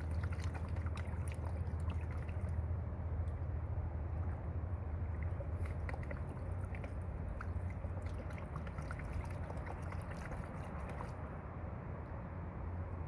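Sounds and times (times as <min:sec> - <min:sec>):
water sloshing in a pan: 0:00.0 - 0:02.7, 0:04.2 - 0:11.2
steady low rumble: 0:00.0 - 0:13.0.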